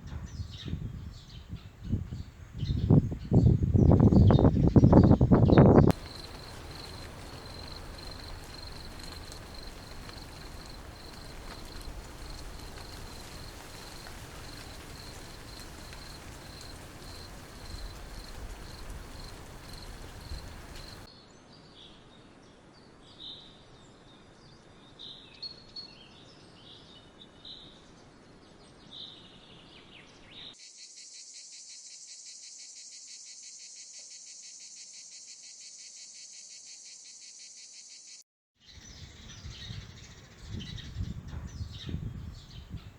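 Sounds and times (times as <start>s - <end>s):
insects chirping: 4.0s - 21.1s, 30.6s - 38.2s
insect trill: 5.6s - 21.1s, 30.6s - 38.2s
background hiss: 5.9s - 21.1s.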